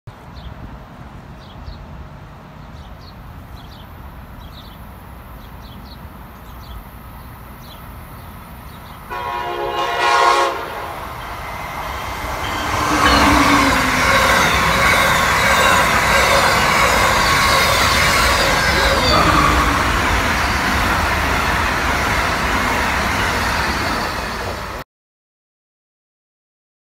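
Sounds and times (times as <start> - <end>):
train wheels rushing on rails: 6.9 - 24.8
train horn: 9.1 - 20.8.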